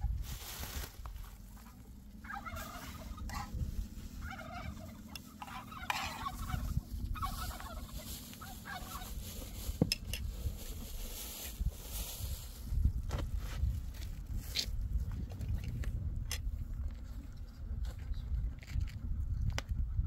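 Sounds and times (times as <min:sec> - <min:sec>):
poultry chattering calls: 0:01.6 - 0:09.5.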